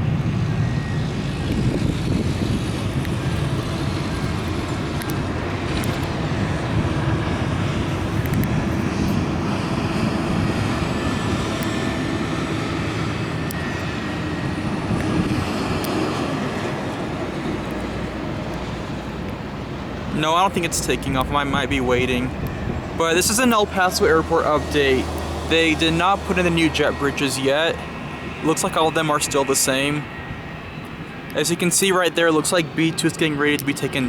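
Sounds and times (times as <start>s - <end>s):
airplane engines rumbling: 0.0s - 34.0s
faint engine whine: 0.0s - 34.0s.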